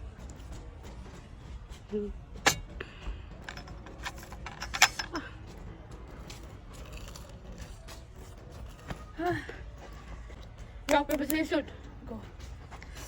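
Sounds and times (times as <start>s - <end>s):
tableware clinking: 2.5s - 2.7s, 3.4s - 5.2s.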